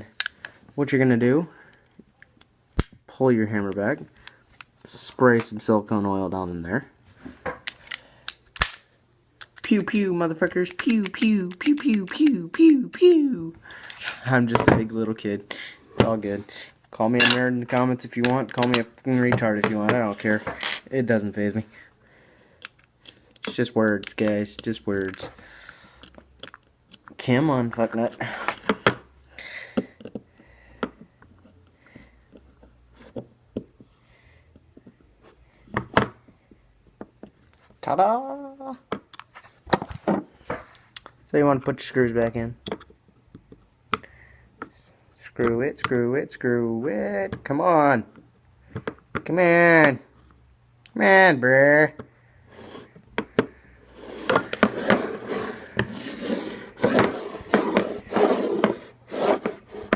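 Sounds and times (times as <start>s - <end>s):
clicks of small pistol parts: 7.6s - 9.7s.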